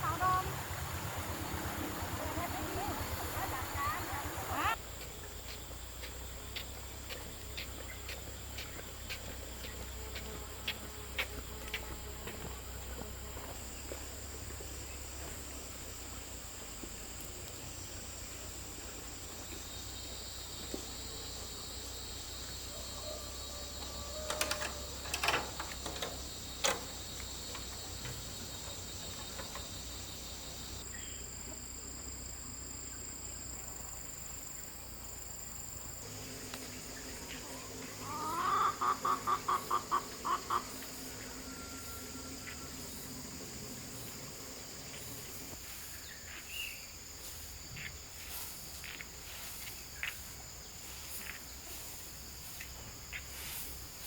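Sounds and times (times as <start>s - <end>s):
insects trilling: 0.0s - 54.0s
fowl repeated call: 38.0s - 42.6s.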